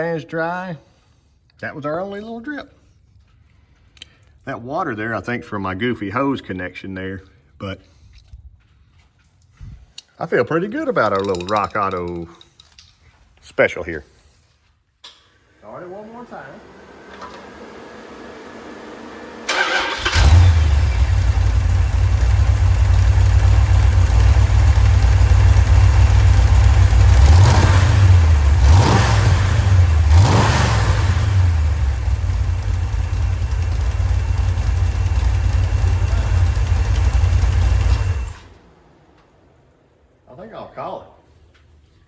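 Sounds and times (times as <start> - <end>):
engine running and revving: 16.6 - 38.5
starter cranking: 19.5 - 29.2.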